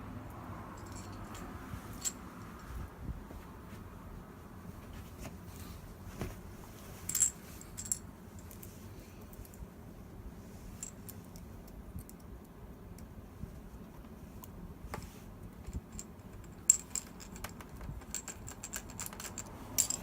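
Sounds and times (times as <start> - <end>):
metallic clinks of small parts: 0.8 - 2.2, 7.0 - 8.7, 15.6 - 20.0.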